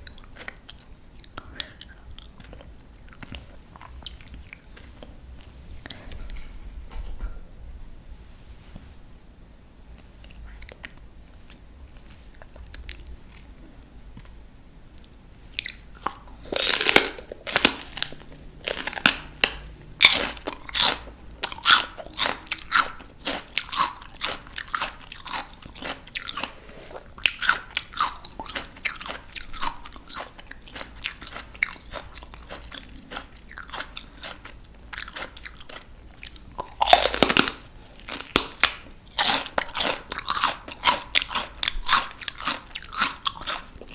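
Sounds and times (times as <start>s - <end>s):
crunching chews: 0.0s - 6.5s, 9.9s - 14.4s, 15.0s - 43.9s
crunchy bite: 15.6s - 26.6s, 27.2s - 43.9s.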